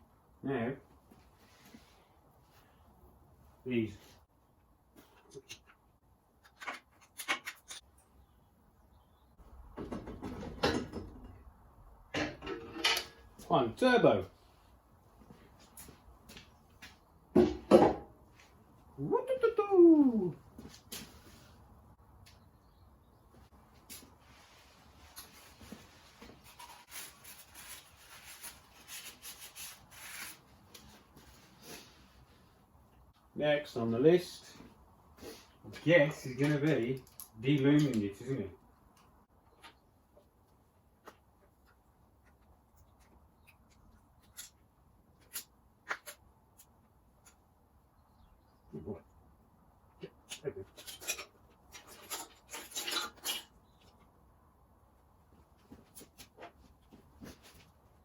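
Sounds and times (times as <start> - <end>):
faint rubbing and scraping of tools: 50.1 - 54.2.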